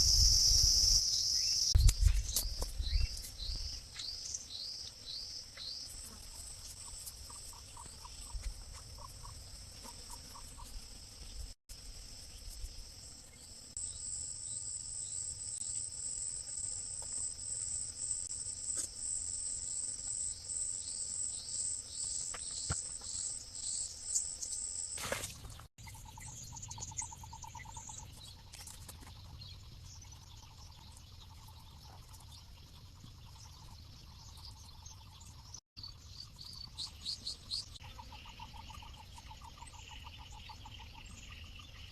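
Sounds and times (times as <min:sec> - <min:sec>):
insects trilling: 0:00.0 - 0:25.2.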